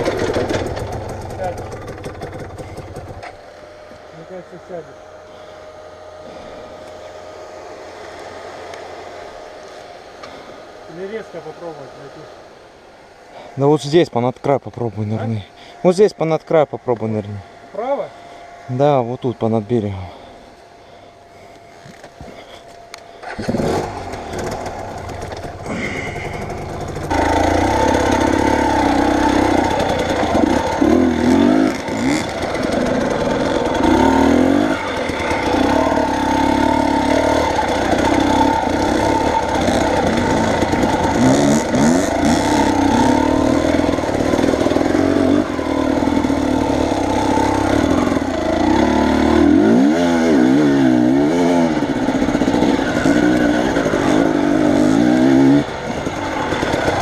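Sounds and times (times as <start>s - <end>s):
vehicle engine revving under load: 23.2s - 57.0s.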